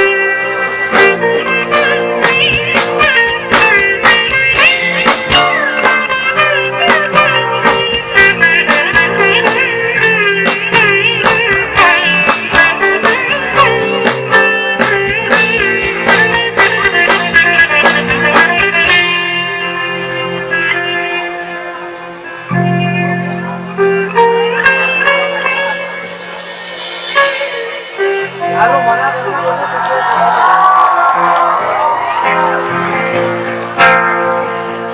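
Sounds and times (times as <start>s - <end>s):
bending wavering lead notes: 0.0s - 30.4s
rock fusion band playing: 0.0s - 34.9s.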